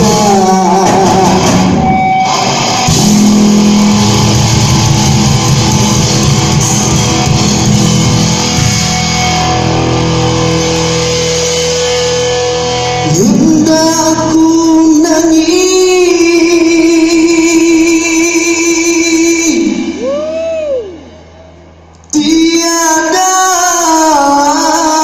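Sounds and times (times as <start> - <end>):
electric guitar sustained notes: 0.0 - 22.0
live rock band playing: 0.0 - 22.4.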